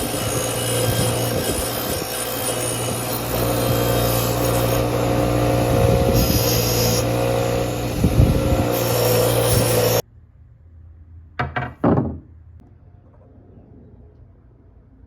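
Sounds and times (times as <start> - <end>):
electric power tool humming: 0.0 - 10.0.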